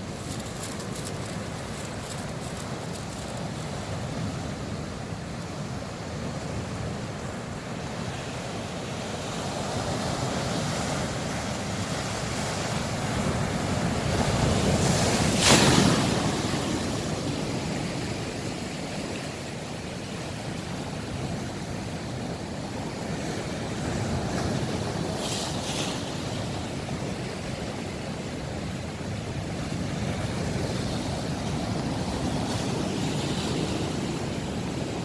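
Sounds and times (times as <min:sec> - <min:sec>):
surf washing on shore: 0:00.0 - 0:35.0
wave crashing: 0:14.8 - 0:17.1.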